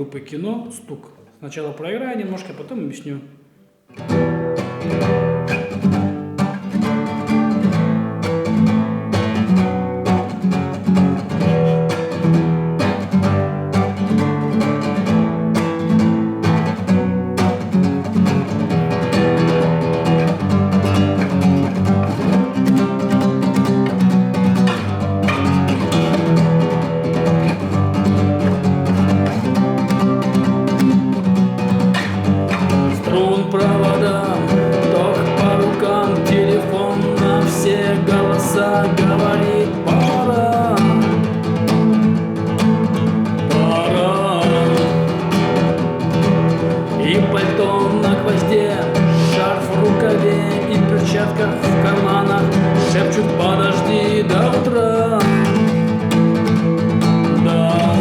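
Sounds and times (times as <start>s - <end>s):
acoustic guitar strumming: 3.5s - 58.0s.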